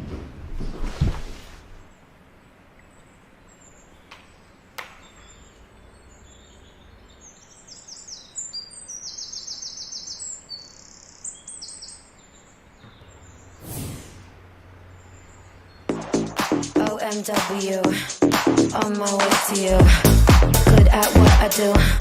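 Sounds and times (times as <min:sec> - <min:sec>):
birds chirping and trilling: 0:01.8 - 0:16.3.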